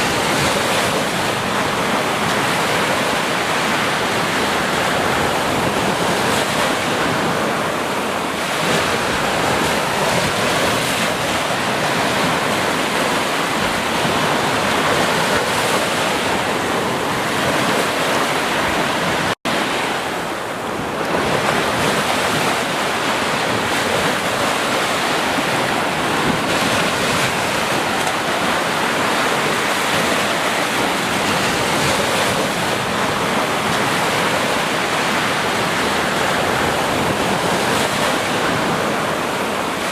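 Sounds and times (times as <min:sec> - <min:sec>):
ocean waves washing on beach: 0:00.0 - 0:39.9.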